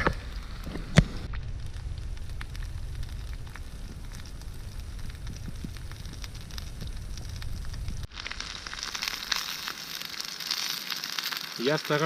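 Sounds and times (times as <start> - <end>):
low rumble: 0.0 - 9.7
campfire crackling and popping: 0.0 - 12.0
chicken sizzling in pan: 8.0 - 12.0.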